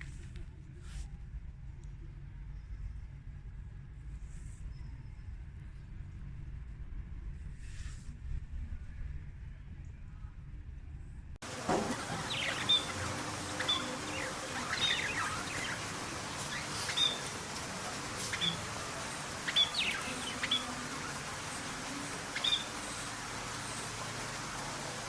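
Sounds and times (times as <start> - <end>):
small birds chirping: 11.4 - 25.0
steady outdoor hiss: 11.4 - 25.0.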